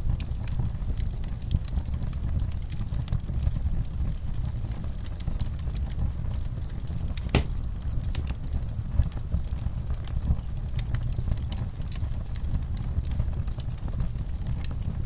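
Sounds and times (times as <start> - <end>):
fire crackling: 0.0 - 15.0
flames rumbling: 0.0 - 15.0
sharp pops of fire: 7.1 - 8.4.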